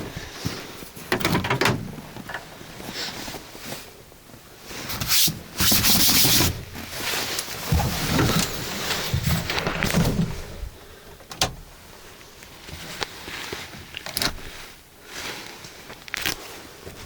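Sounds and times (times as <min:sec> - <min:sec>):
rubbing and scraping noises: 0:04.7 - 0:10.7.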